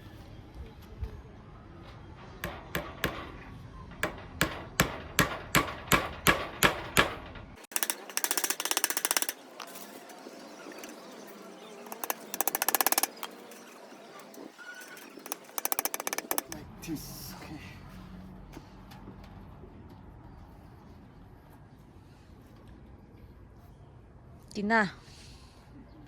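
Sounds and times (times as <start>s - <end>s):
hammer strikes: 2.4s - 9.9s, 11.9s - 13.3s, 15.2s - 16.6s
fast buzzing rattle: 7.7s - 11.0s, 11.8s - 13.3s, 15.0s - 16.6s.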